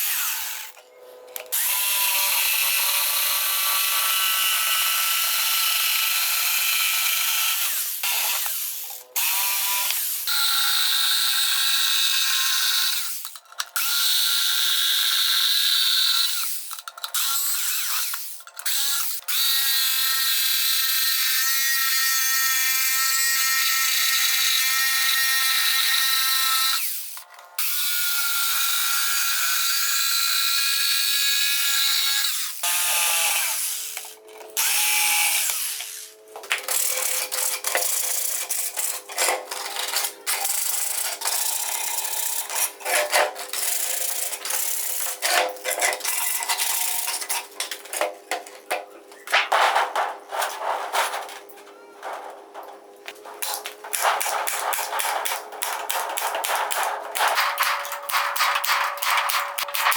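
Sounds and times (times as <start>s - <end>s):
electric drill whining: 1.4s - 36.2s
scraping: 45.2s - 59.9s.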